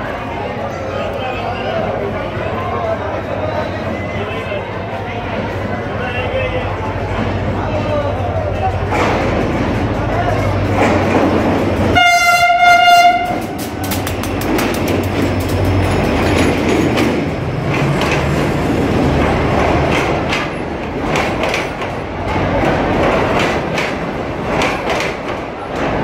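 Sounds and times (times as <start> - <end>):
train rumble: 0.0 - 26.0
wheels clicking over rail joints: 8.6 - 26.0
locomotive horn: 11.9 - 13.6.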